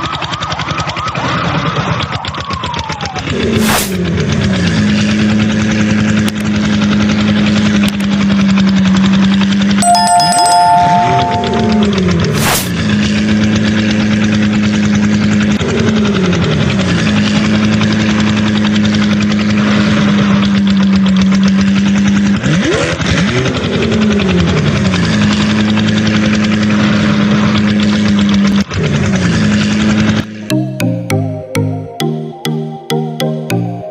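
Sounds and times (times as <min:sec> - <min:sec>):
tractor engine running: 0:11.9 - 0:31.7.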